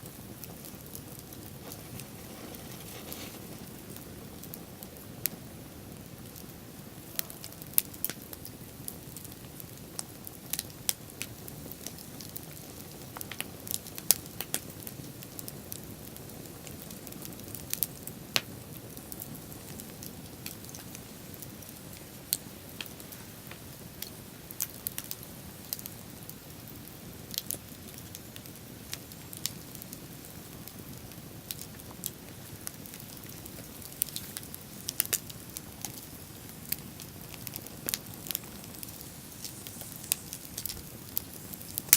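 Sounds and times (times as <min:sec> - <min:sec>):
bonfire crackling and popping: 0:00.0 - 0:41.9
low rushing noise: 0:38.1 - 0:41.7.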